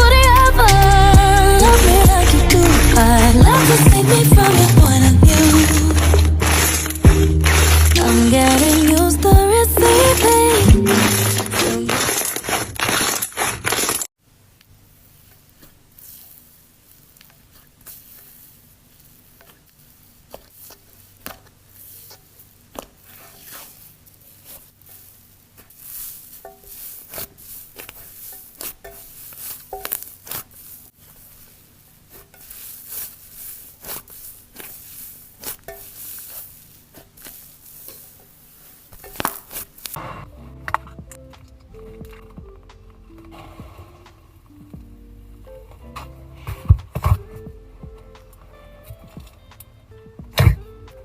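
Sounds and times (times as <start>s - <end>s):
slime squishing and crackling: 1.6s - 14.1s.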